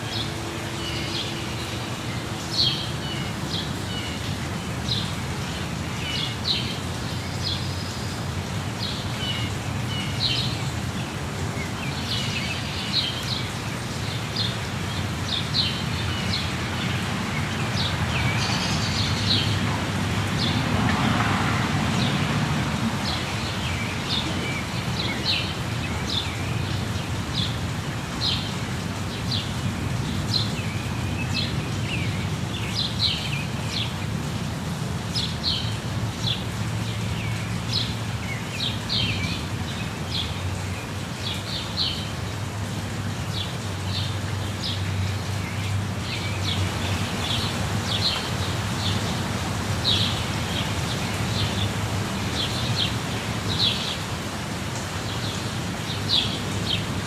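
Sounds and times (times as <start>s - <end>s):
rushing falling water: 0.0s - 57.0s.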